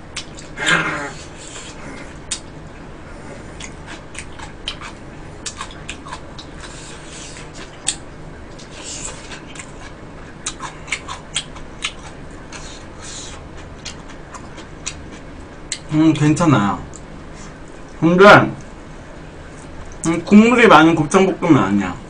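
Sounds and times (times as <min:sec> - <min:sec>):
food being chewed: 0:00.1 - 0:00.6, 0:03.2 - 0:15.9.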